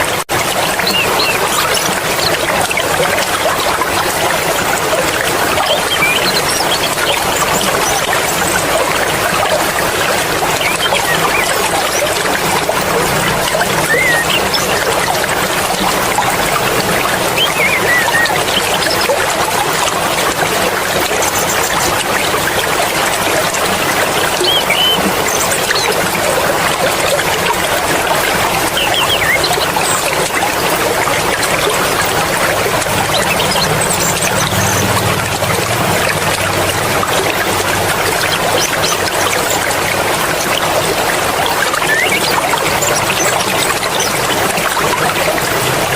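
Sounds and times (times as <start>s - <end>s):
stream water flowing: 0.0s - 45.9s
high chirps: 13.6s - 15.1s, 17.3s - 19.0s, 24.4s - 25.9s.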